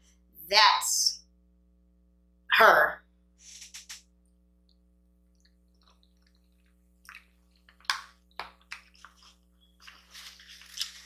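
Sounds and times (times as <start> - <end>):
person chewing: 5.3 - 11.0.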